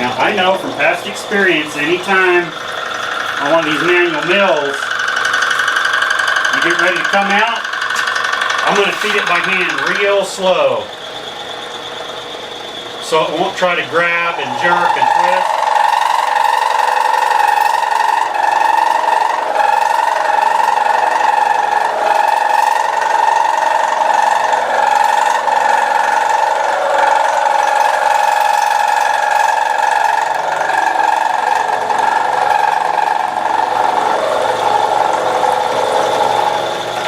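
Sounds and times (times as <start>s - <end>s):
milling machine cutting metal: 0.0s - 37.0s.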